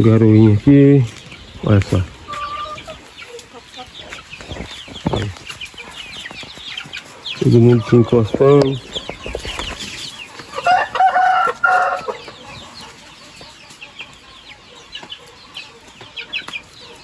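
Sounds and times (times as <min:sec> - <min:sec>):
chicks peeping: 0:00.0 - 0:17.0
rooster crowing: 0:10.5 - 0:12.4.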